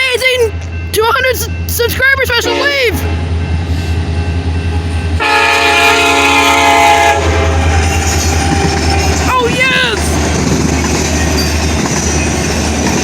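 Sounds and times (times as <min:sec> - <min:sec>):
passing train rumble: 0:00.0 - 0:13.0
locomotive horn blast: 0:02.4 - 0:03.1, 0:05.2 - 0:09.2.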